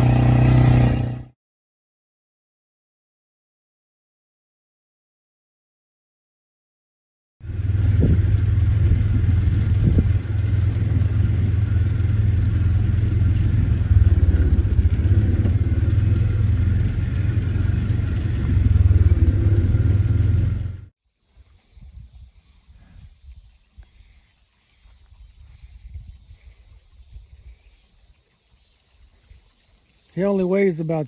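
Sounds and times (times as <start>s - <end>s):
utility vehicle engine running: 0.0s - 1.3s, 7.4s - 20.9s.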